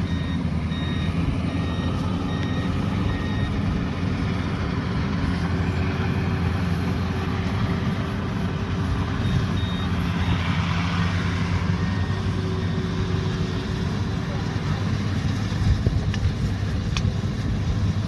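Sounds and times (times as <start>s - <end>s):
diesel engine running under load: 0.0s - 18.0s
short high beeps: 9.2s - 10.5s.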